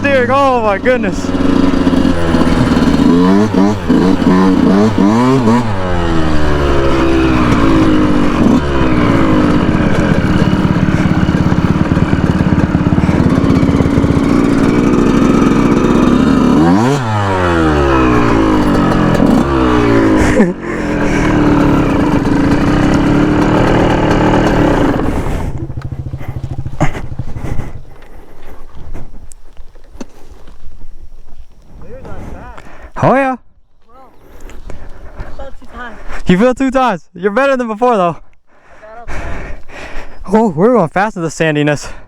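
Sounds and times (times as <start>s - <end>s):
two-stroke motorcycle engine: 0.0s - 30.6s.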